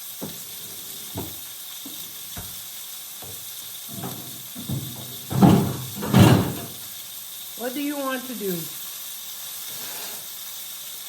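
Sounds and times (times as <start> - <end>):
food sizzling in a frying pan: 0.0 - 11.0
short knocks: 3.9 - 6.8.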